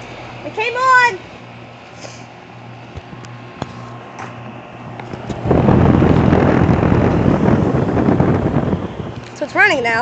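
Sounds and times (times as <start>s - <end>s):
air conditioner unit humming: 0.0s - 10.0s
wind buffeting microphone: 4.8s - 10.0s.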